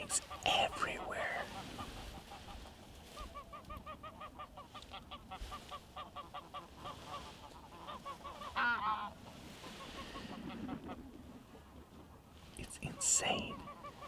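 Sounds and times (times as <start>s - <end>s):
geese honking: 3.4s - 9.2s.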